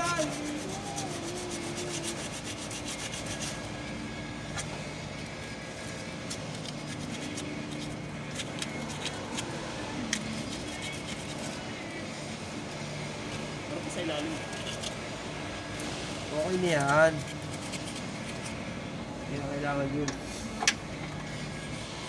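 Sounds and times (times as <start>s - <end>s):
rubbing and scraping: 0.0s - 3.9s, 5.4s - 11.8s, 15.9s - 18.6s.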